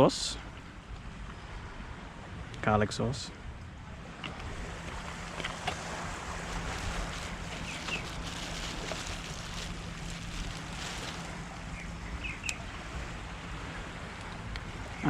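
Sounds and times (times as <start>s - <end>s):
low hum: 3.6s - 15.0s
wind buffeting microphone: 3.8s - 15.0s
surf: 4.0s - 15.0s.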